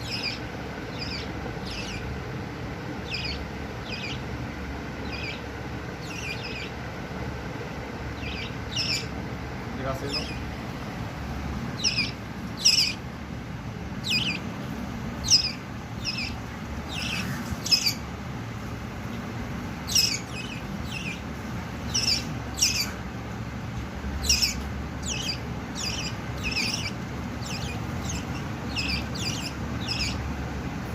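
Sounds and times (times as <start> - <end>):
birds chirping: 0.0 - 30.9
steady low rumble: 0.0 - 30.9.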